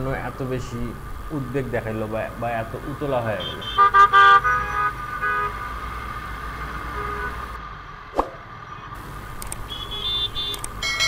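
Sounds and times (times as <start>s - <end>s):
low rumble of engine and wind: 0.0s - 11.0s
vehicle horns honking: 3.2s - 5.8s, 6.8s - 7.6s, 9.6s - 11.0s
sharp click: 9.4s - 9.7s, 10.5s - 10.8s.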